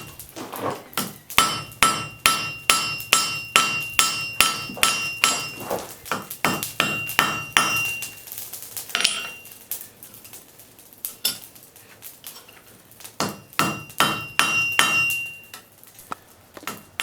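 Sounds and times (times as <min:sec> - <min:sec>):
hammer striking iron on anvil: 0:01.0 - 0:08.1, 0:09.0 - 0:09.4, 0:13.2 - 0:15.5.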